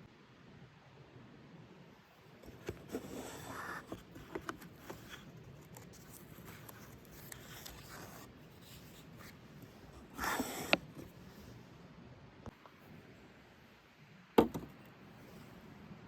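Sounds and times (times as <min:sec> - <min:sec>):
faint scraping and rubbing: 0:02.4 - 0:11.7.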